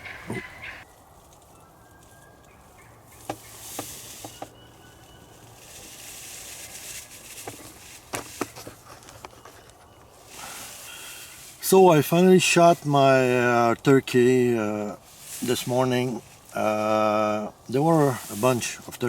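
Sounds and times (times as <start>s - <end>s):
turkey calls: 0.0s - 7.2s, 8.9s - 11.6s
faint clicks and rustles: 0.8s - 11.7s.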